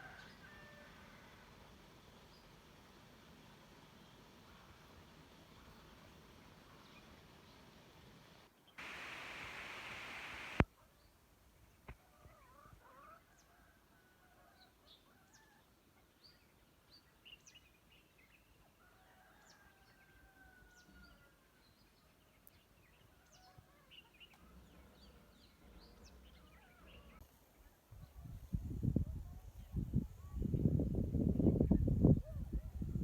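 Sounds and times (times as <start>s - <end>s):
faint birds chirping: 5.5s - 11.8s.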